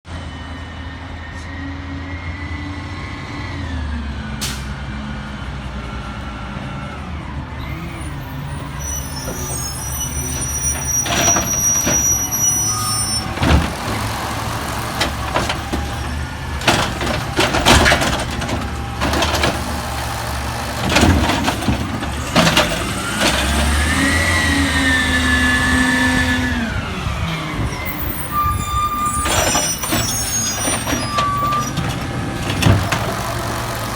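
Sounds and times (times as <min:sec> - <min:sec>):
diesel truck engine revving: 0:00.5 - 0:33.9
loud bangs and clanks: 0:13.2 - 0:23.7.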